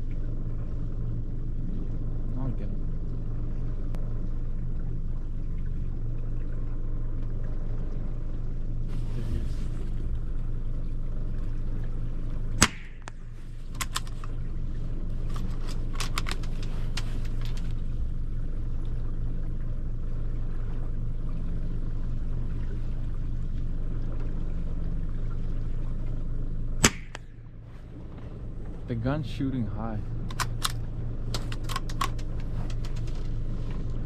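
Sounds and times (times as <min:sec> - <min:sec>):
boat engine idling: 0:00.0 - 0:34.0
gunshot: 0:12.6 - 0:13.0, 0:26.8 - 0:27.2
sharp clicks: 0:12.6 - 0:14.4, 0:15.3 - 0:17.8, 0:26.8 - 0:27.3, 0:30.2 - 0:33.3.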